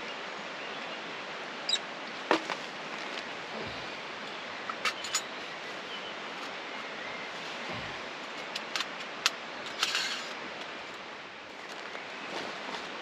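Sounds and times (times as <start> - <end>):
steady outdoor hiss: 0.0 - 13.0
metal clicks and clinks: 4.7 - 5.3.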